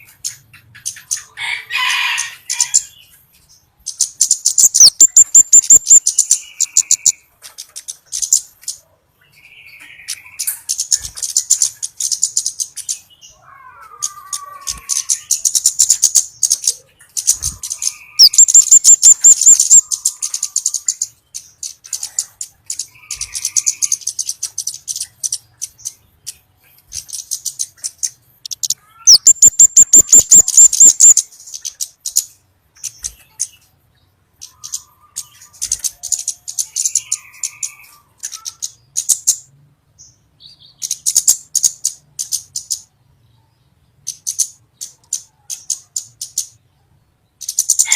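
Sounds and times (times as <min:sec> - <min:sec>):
bird high rapid ticking: 0:00.0 - 0:01.4, 0:03.8 - 0:08.8, 0:10.0 - 0:13.1, 0:14.0 - 0:33.6, 0:34.4 - 0:39.5, 0:40.8 - 0:42.9, 0:44.0 - 0:46.6, 0:47.4 - 0:47.9
loud fast bird trills: 0:04.4 - 0:07.2, 0:17.2 - 0:21.0, 0:28.4 - 0:31.3.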